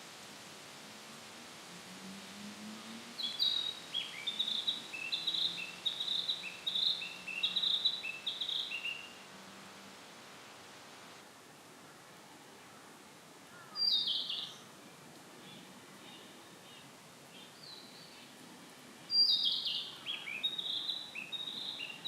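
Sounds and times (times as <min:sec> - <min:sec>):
flycatcher singing: 0:03.2 - 0:09.2, 0:19.1 - 0:22.0.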